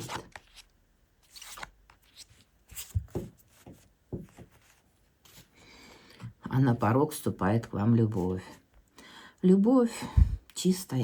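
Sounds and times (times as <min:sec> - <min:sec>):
cards rustling and slapping: 0:00.0 - 0:04.8.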